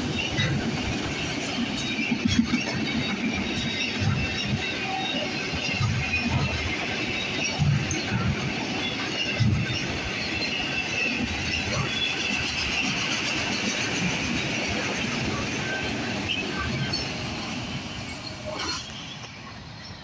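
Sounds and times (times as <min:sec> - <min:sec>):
freight train wheels rumbling on rails: 0:00.0 - 0:20.0
faint high wheel squeal: 0:03.4 - 0:13.8, 0:14.9 - 0:20.0.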